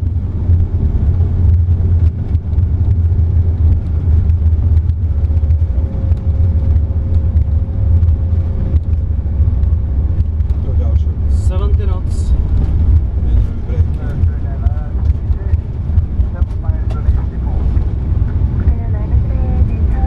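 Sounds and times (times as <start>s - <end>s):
jet engines in reverse thrust: 0.0s - 18.7s
wheels running on runway: 0.0s - 20.0s.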